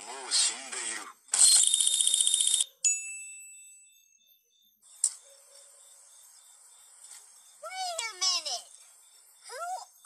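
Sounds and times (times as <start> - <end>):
faint outdoor hiss: 2.8 - 10.0
insects: 4.2 - 10.0.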